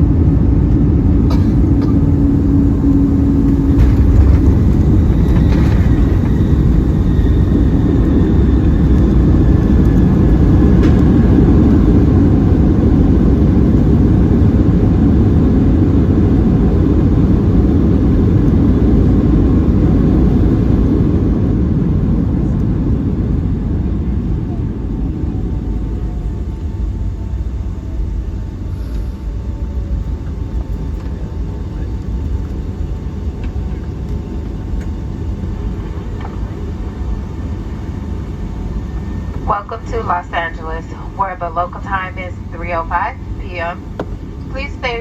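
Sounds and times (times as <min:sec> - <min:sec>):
airplane cabin roar: 0:00.0 - 0:45.0
faint falling whine: 0:01.3 - 0:11.8.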